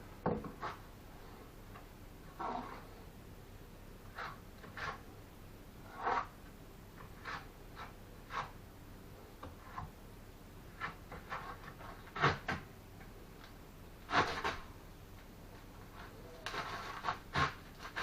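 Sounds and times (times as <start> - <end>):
trowel scraping and knocking bricks: 5.8 - 6.3, 15.9 - 18.0.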